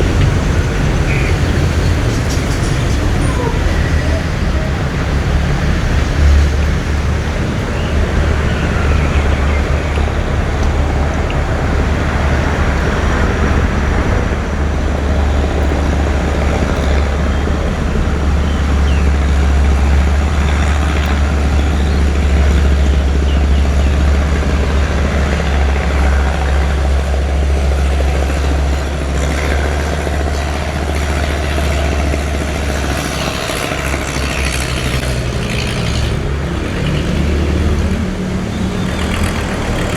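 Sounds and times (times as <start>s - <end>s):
engine low drone: 0.0s - 39.9s.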